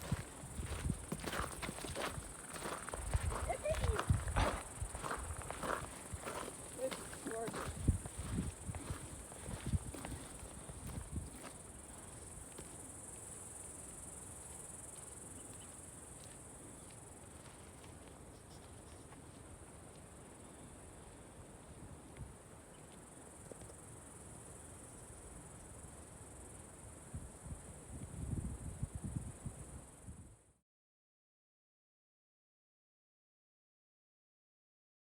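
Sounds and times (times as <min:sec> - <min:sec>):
high-pitched insect chorus: 0:00.0 - 0:17.3.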